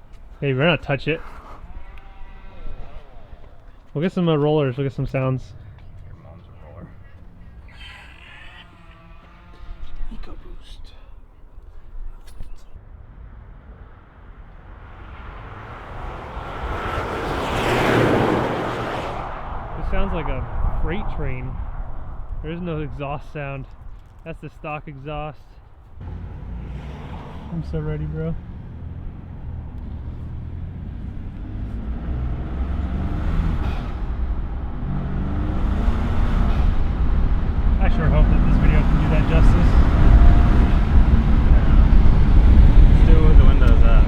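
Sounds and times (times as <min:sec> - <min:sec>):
pickup truck engine pulling hard: 0:00.0 - 0:10.8, 0:14.9 - 0:23.0, 0:26.0 - 0:44.0
turbo rushing whooshes: 0:14.5 - 0:23.0
air intake rushing: 0:26.0 - 0:44.0.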